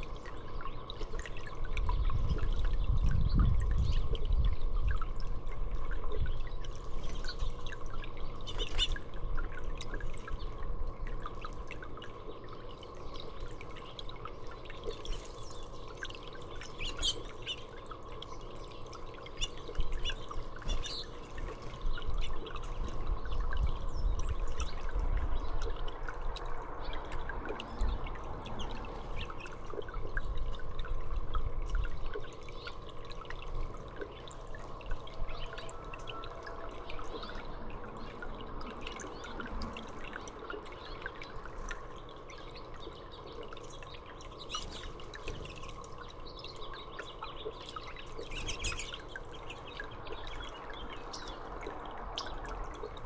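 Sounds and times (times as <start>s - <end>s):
faint steady hum: 0.0s - 53.0s
water trickling: 0.0s - 53.0s
small birds chirping: 6.4s - 9.0s, 12.4s - 25.7s, 26.8s - 29.7s, 38.9s - 52.6s.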